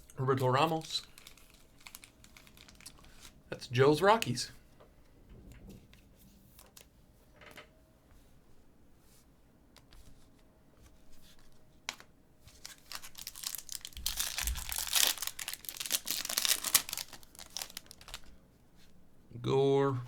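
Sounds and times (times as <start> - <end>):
wrapper torn and crinkled: 0.7 - 3.4, 12.5 - 18.3.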